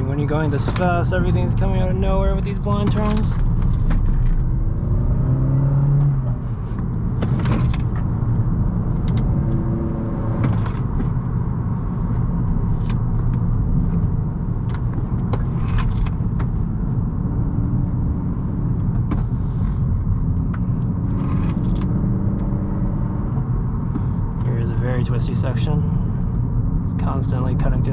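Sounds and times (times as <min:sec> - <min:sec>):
car engine revving: 0:00.0 - 0:26.2.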